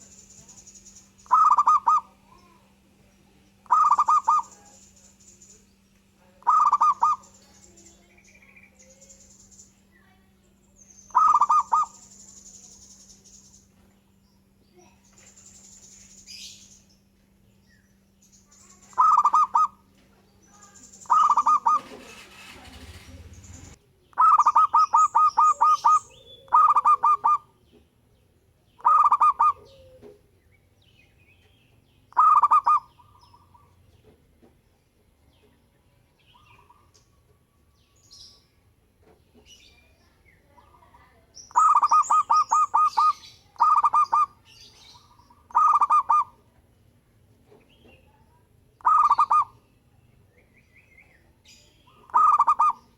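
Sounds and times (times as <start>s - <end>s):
dove cooing: 1.2s - 2.6s, 3.6s - 4.7s, 6.4s - 7.3s, 11.1s - 12.0s, 18.9s - 19.9s, 21.0s - 27.6s, 28.8s - 30.3s, 32.2s - 33.8s, 41.5s - 44.4s, 45.0s - 46.4s, 48.8s - 49.6s, 51.9s - 52.9s.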